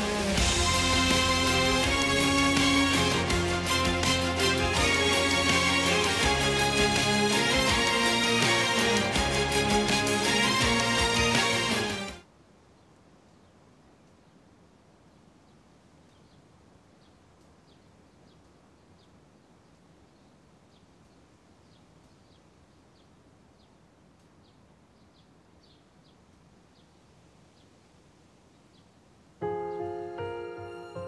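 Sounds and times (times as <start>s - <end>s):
piano music: 0.0s - 12.2s, 29.4s - 31.0s
background hiss: 0.0s - 31.0s.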